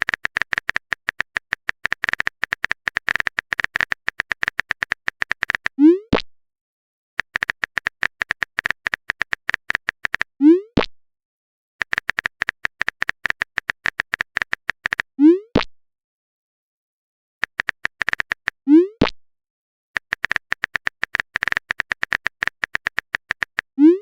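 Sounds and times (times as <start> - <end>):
phone keyboard typing clicks: 0.0 - 5.8, 7.2 - 10.3, 11.8 - 15.1, 17.4 - 18.6, 20.0 - 23.7.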